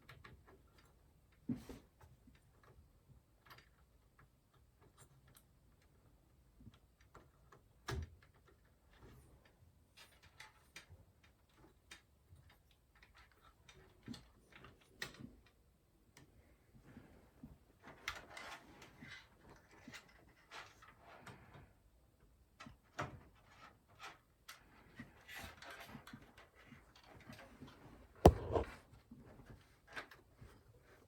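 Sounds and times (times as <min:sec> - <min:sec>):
loud knock: 0:28.3 - 0:28.7.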